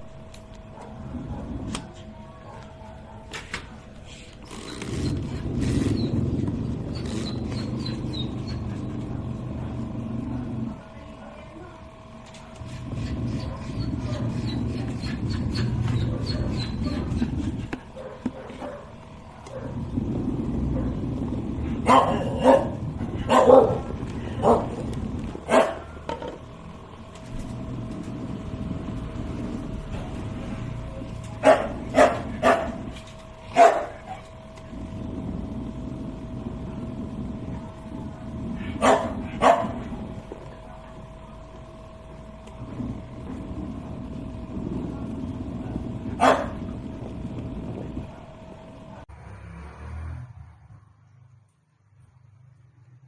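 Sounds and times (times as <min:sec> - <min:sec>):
washing machine motor rumble: 0:00.0 - 0:49.1
dog barking: 0:00.7 - 0:03.9, 0:13.4 - 0:17.3, 0:17.9 - 0:19.9, 0:21.7 - 0:24.8, 0:25.4 - 0:26.0, 0:31.3 - 0:32.9, 0:33.5 - 0:34.3, 0:38.6 - 0:39.9, 0:46.1 - 0:46.7
low rumble: 0:19.7 - 0:25.5, 0:34.3 - 0:49.1.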